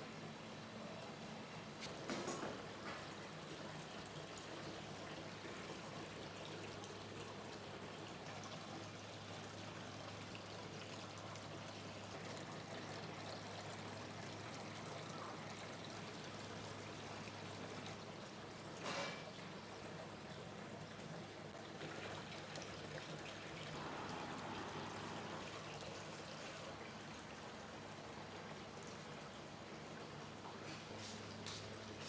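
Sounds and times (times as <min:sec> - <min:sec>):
water pouring: 0:21.6 - 0:29.0.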